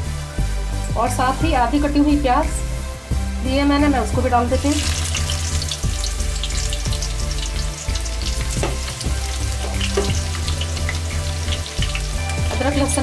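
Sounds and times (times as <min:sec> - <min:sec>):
onion sizzling in hot oil: 0:01.3 - 0:13.0
small oil pops: 0:08.5 - 0:09.0.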